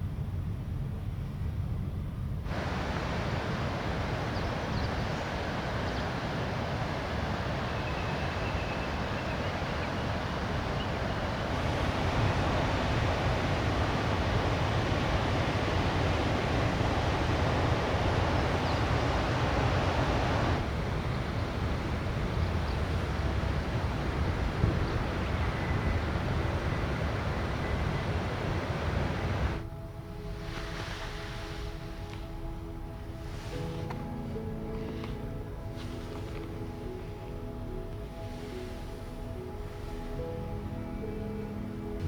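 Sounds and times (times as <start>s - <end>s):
heavy rain rushing: 2.5s - 41.0s.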